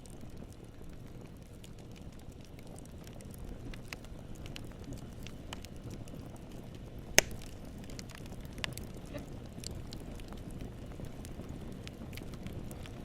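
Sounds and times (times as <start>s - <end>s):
campfire flames rumbling: 0.0s - 13.0s
wood crackling: 0.0s - 13.0s
loud fire pop: 7.1s - 7.6s.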